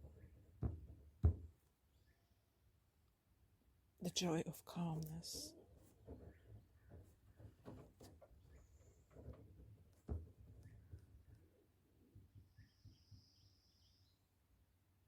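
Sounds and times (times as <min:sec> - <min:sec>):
faint high chirp: 0:12.5 - 0:14.3.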